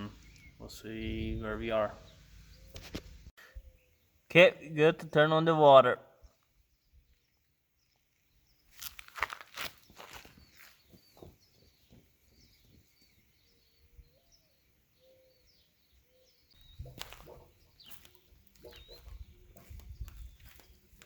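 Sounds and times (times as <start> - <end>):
faint bird chirps: 9.8 - 21.0.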